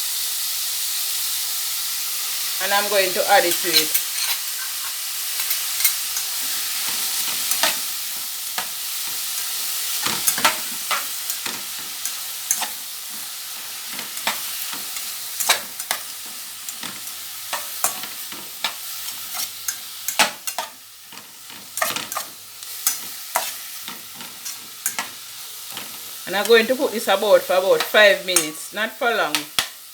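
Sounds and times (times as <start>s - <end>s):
vegetables sizzling in hot oil: 0.0s - 29.9s
utensil scraping against pot: 3.7s - 7.8s, 9.1s - 26.7s.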